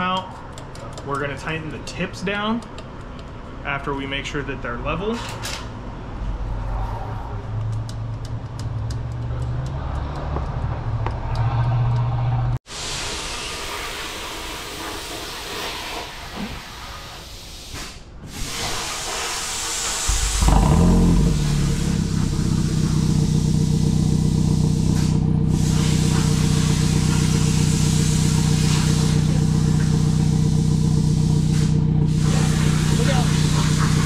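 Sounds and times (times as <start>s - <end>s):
car engine starting and idling: 19.7s - 34.0s.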